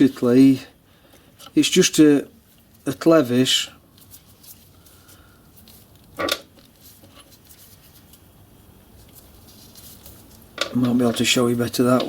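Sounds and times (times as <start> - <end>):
faint handling noises: 2.4 - 12.0.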